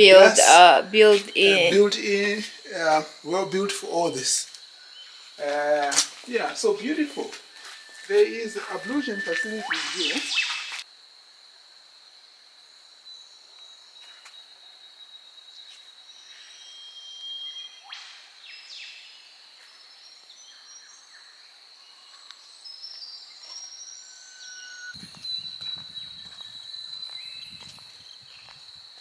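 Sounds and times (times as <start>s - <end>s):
bird calls: 0.0s - 10.8s, 25.0s - 28.8s
high insect drone: 0.0s - 15.7s, 22.5s - 29.0s.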